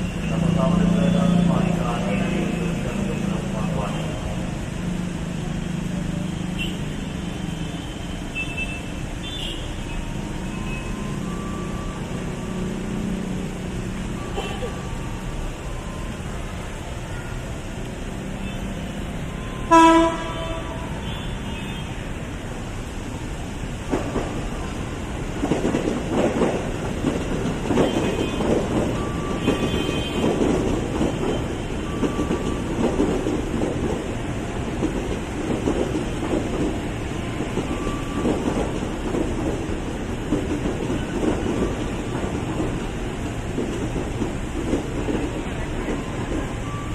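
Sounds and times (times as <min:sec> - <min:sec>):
electric train rumbling: 0:00.0 - 0:46.9
train wheels clattering over rail joints: 0:23.8 - 0:46.6.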